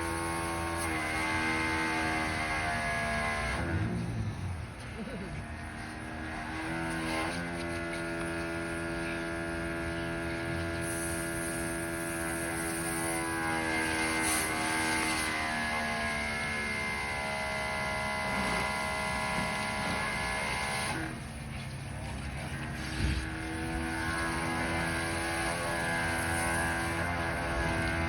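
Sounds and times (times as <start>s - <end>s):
pressure washer motor humming: 0.0s - 28.0s
spray hissing: 10.8s - 13.2s.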